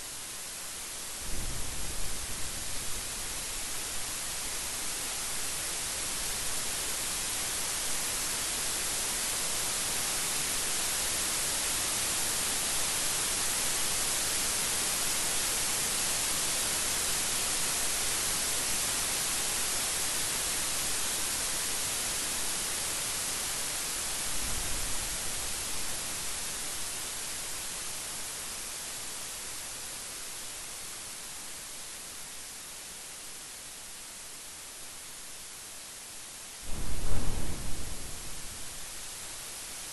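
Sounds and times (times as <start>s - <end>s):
steady rain hiss: 0.0s - 39.9s
low rumble: 36.7s - 38.9s.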